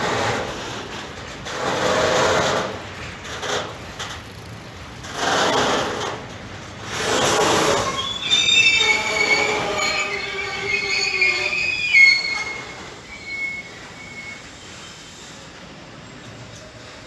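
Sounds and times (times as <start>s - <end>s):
train rumble: 0.0s - 17.0s
train wheels squealing: 6.9s - 17.0s.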